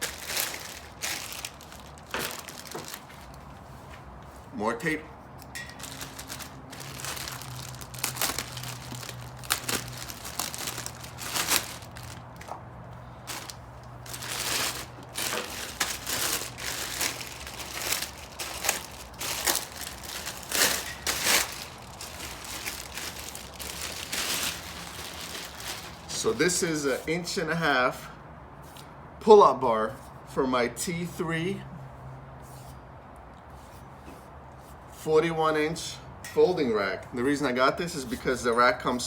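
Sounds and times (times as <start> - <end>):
plastic packaging crinkling: 0.0 - 3.5, 5.4 - 12.6, 13.2 - 26.3
tape ripping: 5.8 - 12.6, 13.3 - 26.2.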